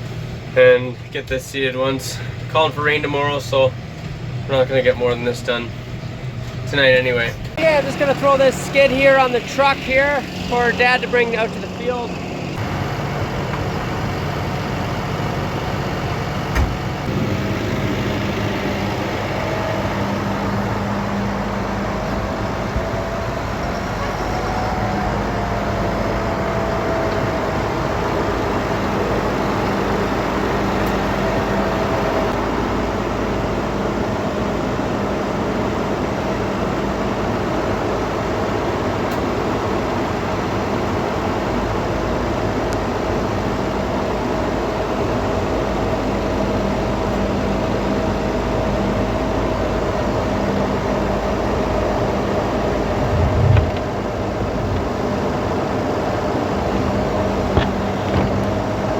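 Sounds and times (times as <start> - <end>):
farm machine engine running: 5.8 - 36.0, 50.2 - 58.9
heavy low thump: 52.9 - 54.9.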